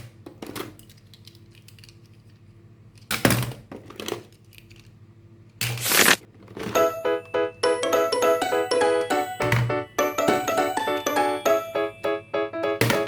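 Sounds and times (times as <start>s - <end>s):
plastic toy cars clattering: 0.0s - 5.0s.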